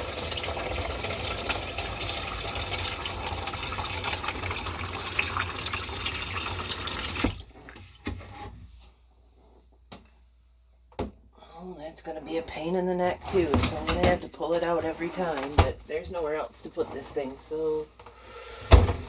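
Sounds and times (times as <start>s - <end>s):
water running from a tap: 0.0s - 7.6s.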